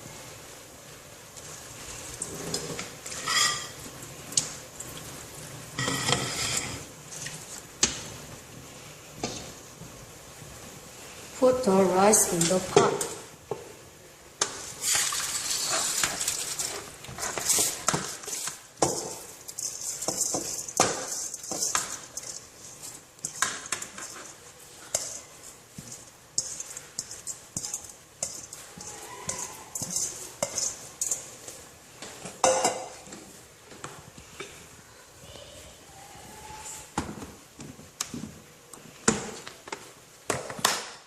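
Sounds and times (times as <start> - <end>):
pot and utensils clinking: 2.2 - 5.0, 5.8 - 8.0, 14.4 - 33.2.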